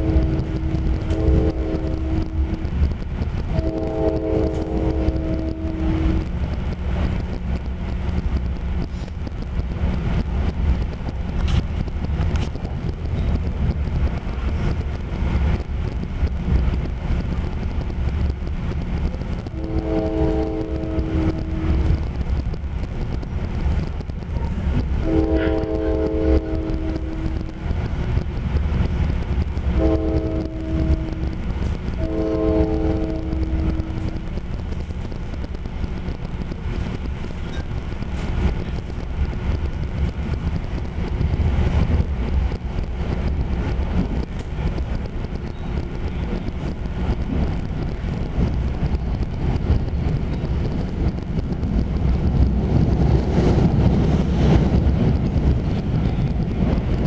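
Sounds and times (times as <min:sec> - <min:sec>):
train horn blasts: 0:00.0 - 0:06.4, 0:19.4 - 0:22.0, 0:25.0 - 0:27.7, 0:29.7 - 0:34.4
train rumble from inside car: 0:00.0 - 0:57.0.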